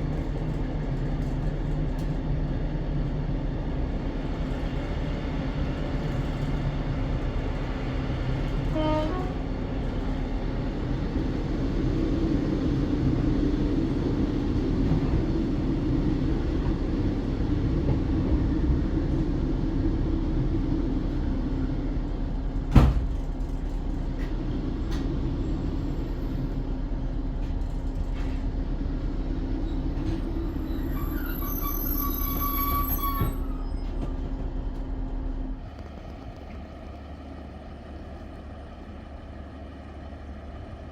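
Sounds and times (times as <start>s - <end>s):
diesel train engine drone: 0.0s - 40.9s
high squeal: 30.5s - 34.0s.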